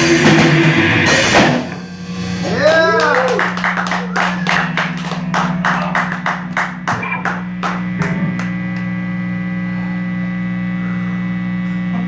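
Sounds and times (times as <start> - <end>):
amplifier electrical hum: 1.6 - 12.0
rhythmic percussive taps: 3.5 - 8.9.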